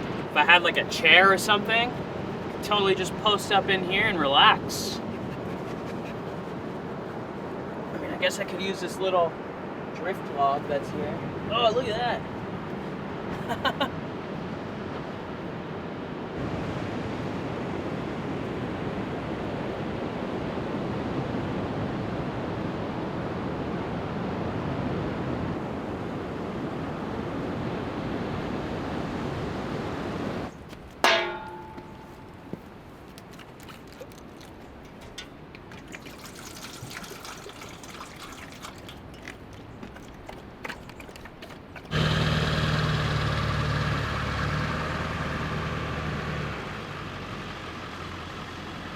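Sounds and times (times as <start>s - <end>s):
metallic clang ringing: 31.0s - 32.4s
truck engine hum: 41.6s - 48.9s.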